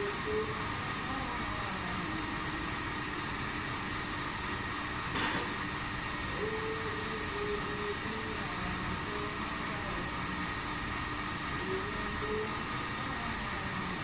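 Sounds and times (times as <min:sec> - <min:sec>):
machine humming and hissing: 0:00.0 - 0:14.0.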